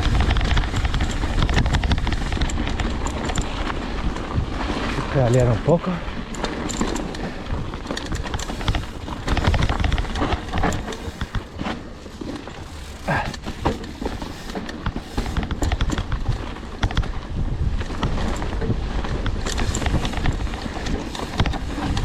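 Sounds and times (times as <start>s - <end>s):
bike tyres rattling over rough ground: 0.0s - 22.0s
wind rumbling on microphone: 0.0s - 22.0s
bike squeaks: 8.3s - 15.7s, 21.0s - 22.0s.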